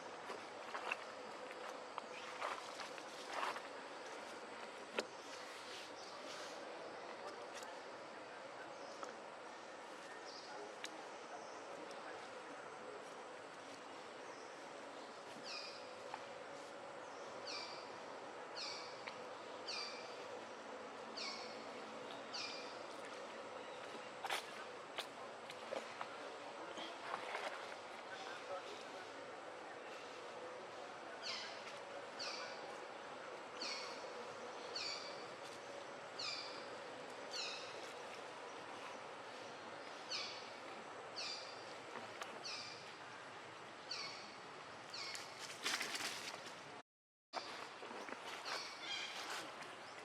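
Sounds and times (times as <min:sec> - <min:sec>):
outdoor background hiss: 0:00.0 - 0:46.8, 0:47.4 - 0:50.0.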